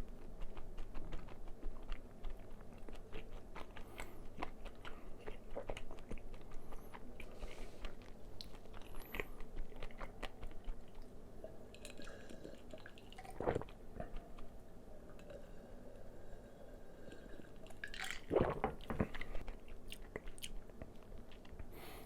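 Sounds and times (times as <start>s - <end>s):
chewing crispy fried chicken: 0.0s - 11.2s, 17.9s - 21.7s.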